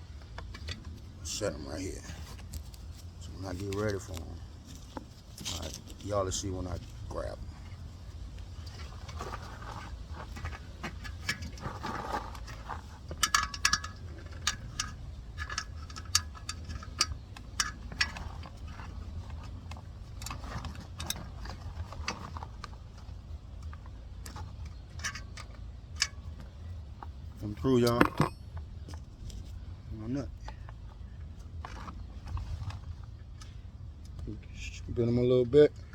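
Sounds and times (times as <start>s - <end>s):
steady low hum: 0.0s - 35.9s
metal parts clinking: 10.4s - 22.5s, 23.6s - 26.7s, 27.4s - 29.4s.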